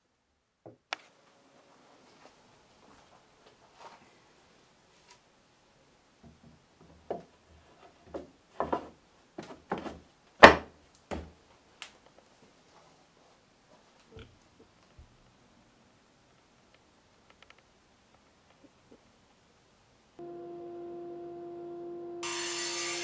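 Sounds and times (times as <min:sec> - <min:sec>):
wood scraping on wood: 0:07.1 - 0:10.0
wooden boards knocking: 0:08.1 - 0:11.3.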